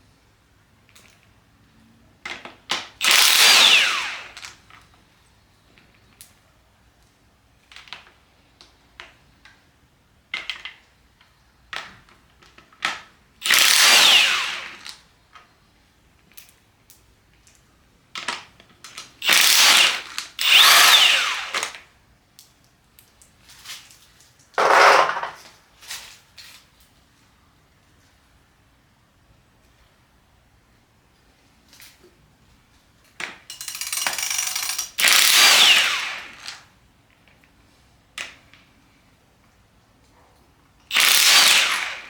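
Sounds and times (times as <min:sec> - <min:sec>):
impact wrench bursts: 0:03.0 - 0:04.5, 0:13.4 - 0:14.9, 0:19.2 - 0:21.8, 0:24.6 - 0:25.4, 0:33.5 - 0:36.6, 0:40.9 - 0:42.0
small clicks and knocks: 0:33.0 - 0:35.0.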